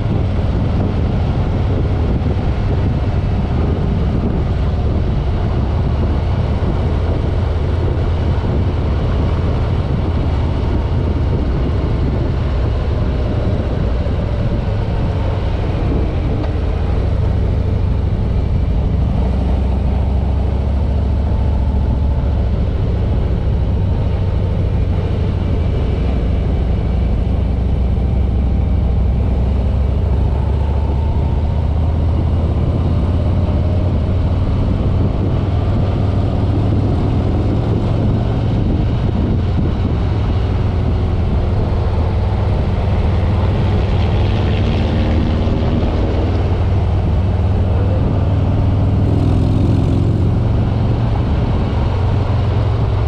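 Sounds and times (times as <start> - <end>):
motorcycle engine rumbling: 0.0 - 53.0.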